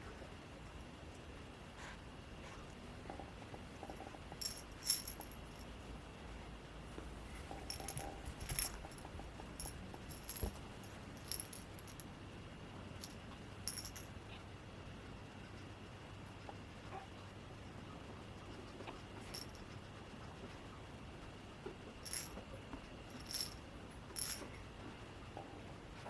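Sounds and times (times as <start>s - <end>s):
metallic jingling and clinking: 4.4s - 5.7s, 7.5s - 12.0s, 13.0s - 14.1s, 19.2s - 19.6s, 22.0s - 22.4s, 23.1s - 23.6s, 24.2s - 24.6s.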